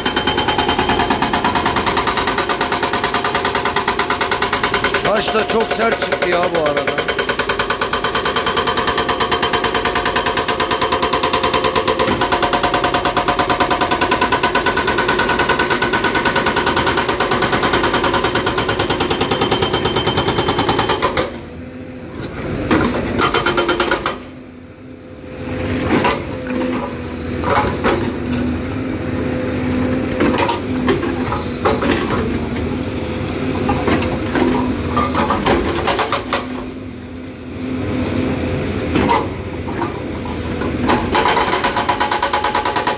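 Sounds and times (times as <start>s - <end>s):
hydraulic breaker hammering rock: 0.0s - 21.4s, 22.7s - 24.3s, 33.4s - 36.8s, 38.8s - 42.9s
excavator engine running: 0.0s - 42.9s.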